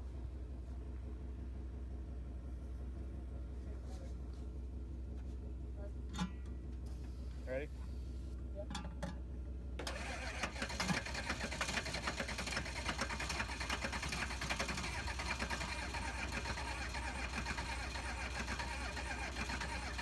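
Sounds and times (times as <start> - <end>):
starter motor cranking engine: 9.8 - 20.0.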